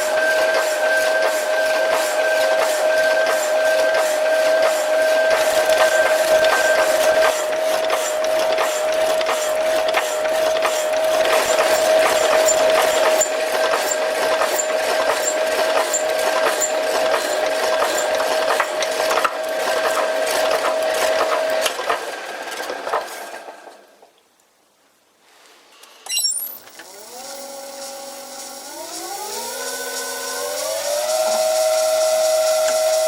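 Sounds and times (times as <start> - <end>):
machine tool whining: 4.4 - 20.5.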